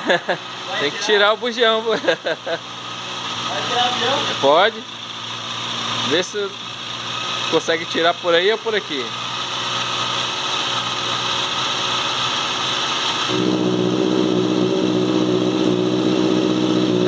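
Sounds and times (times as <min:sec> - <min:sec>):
motorcycle engine idling: 0:00.1 - 0:12.0.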